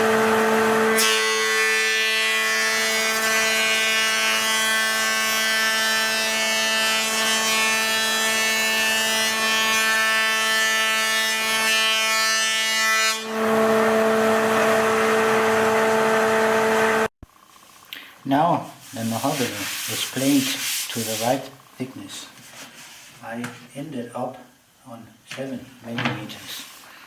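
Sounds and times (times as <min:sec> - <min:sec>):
power planer cutting wood: 0:00.0 - 0:17.1.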